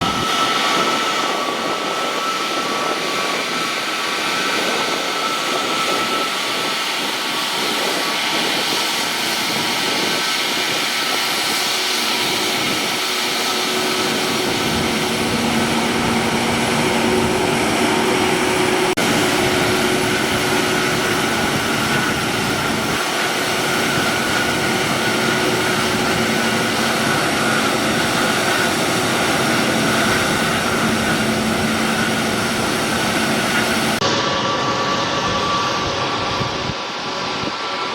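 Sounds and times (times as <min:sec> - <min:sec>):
high engine whine: 0:00.0 - 0:37.9
jet engines running: 0:00.0 - 0:37.9
low hum: 0:11.6 - 0:37.6.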